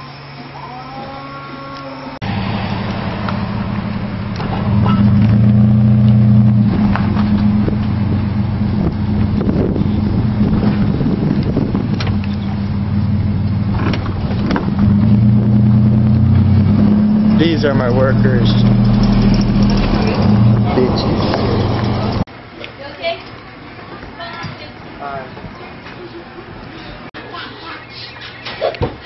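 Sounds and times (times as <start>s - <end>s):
car engine running: 2.2s - 22.3s.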